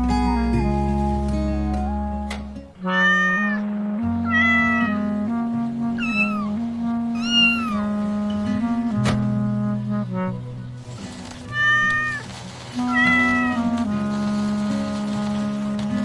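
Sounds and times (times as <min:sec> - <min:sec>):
soft background music: 0:00.0 - 0:16.0
cat meowing: 0:02.8 - 0:05.1, 0:06.0 - 0:07.9, 0:11.5 - 0:13.6.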